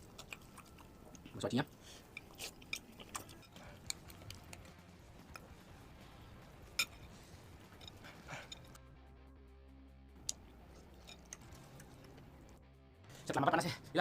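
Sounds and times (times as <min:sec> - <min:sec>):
chewing smacks: 0:00.0 - 0:05.6.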